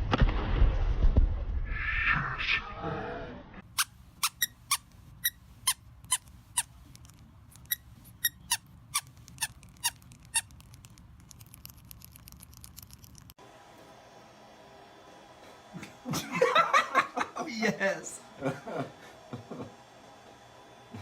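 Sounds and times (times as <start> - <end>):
short high squeaks: 3.6 - 13.3.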